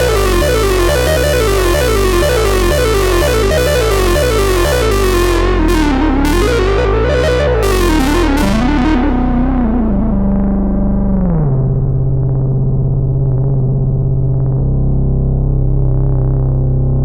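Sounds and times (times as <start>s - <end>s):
synthesizer lead line: 0.0s - 12.7s
low synth bass notes: 0.0s - 17.0s.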